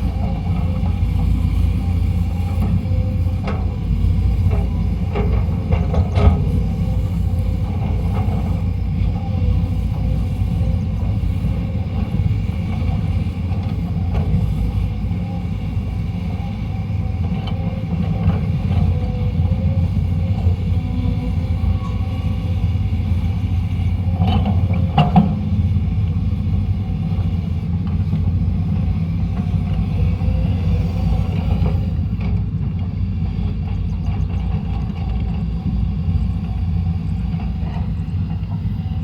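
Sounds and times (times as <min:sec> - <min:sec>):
excavator diesel engine rumbling: 0:00.0 - 0:39.0.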